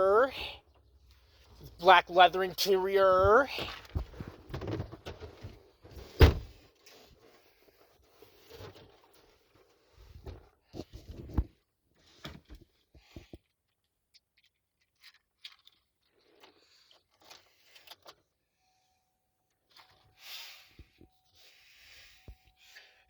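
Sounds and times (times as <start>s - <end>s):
faint steady tone: 18.5s - 23.0s.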